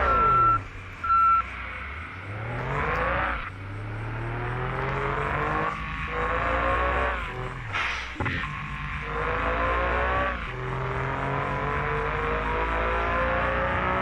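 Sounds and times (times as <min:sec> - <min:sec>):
short electronic beeps: 0:00.0 - 0:01.6
vehicle engine accelerating: 0:00.0 - 0:14.0.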